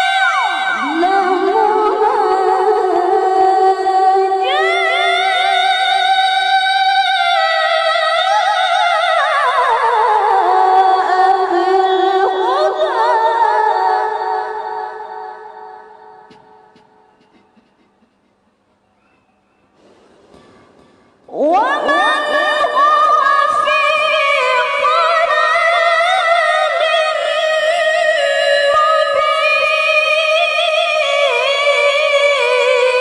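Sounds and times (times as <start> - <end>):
woman reciting melodically: 0.0 - 17.1, 21.3 - 33.0.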